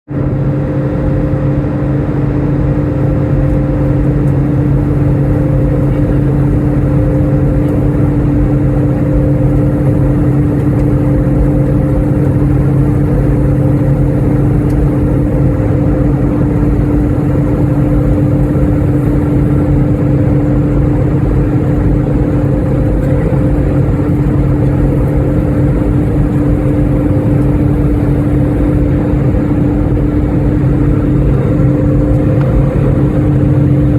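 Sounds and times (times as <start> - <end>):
airliner engines droning: 0.1 - 33.9.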